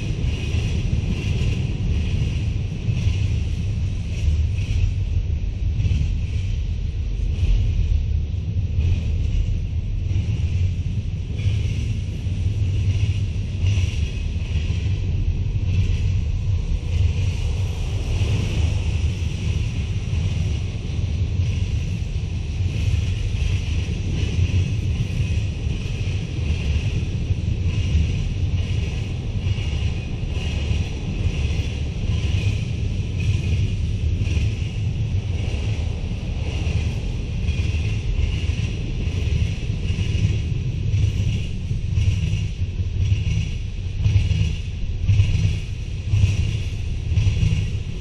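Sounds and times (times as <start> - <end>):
train wheels rumbling on rails: 0.0 - 48.0.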